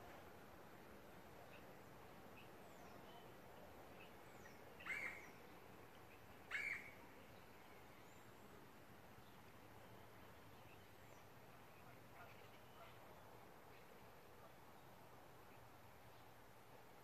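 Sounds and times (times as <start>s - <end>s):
short bird calls: 4.4s - 5.4s, 6.1s - 7.0s.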